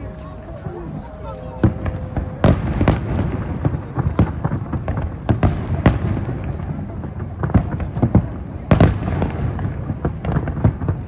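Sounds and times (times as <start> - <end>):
low rumble: 0.0 - 7.2
fireworks bursting: 0.0 - 11.0.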